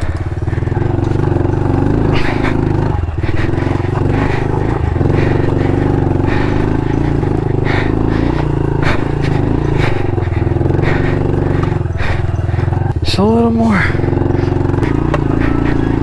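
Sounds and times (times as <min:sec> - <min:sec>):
motorbike engine running under load: 0:00.0 - 0:16.0.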